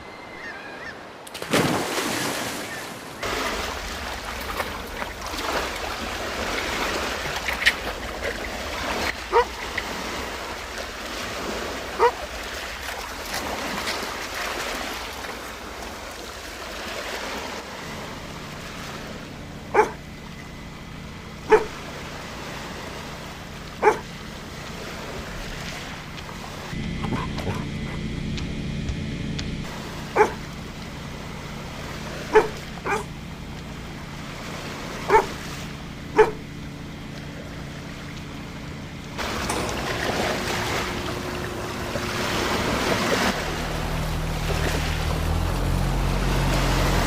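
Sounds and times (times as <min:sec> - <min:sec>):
wind: 0:00.0 - 0:47.0
surf rushing: 0:01.2 - 0:20.0, 0:39.2 - 0:47.0
dog barking: 0:09.3 - 0:09.6, 0:11.9 - 0:12.3, 0:19.7 - 0:20.0, 0:21.4 - 0:21.8, 0:23.8 - 0:24.1, 0:30.1 - 0:30.5, 0:32.3 - 0:33.1, 0:35.0 - 0:35.4, 0:36.1 - 0:36.5.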